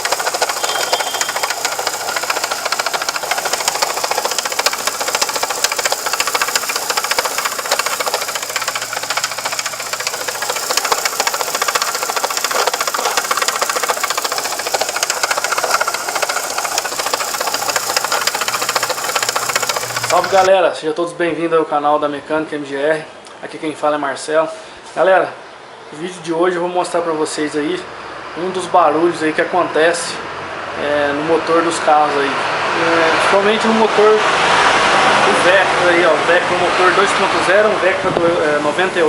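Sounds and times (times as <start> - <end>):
car engine running: 0.0 - 20.5.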